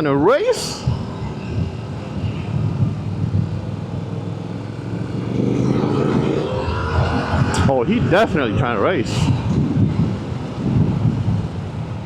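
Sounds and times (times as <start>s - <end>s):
wind noise: 0.5s - 12.0s
motorcycle engine accelerating: 1.5s - 11.1s.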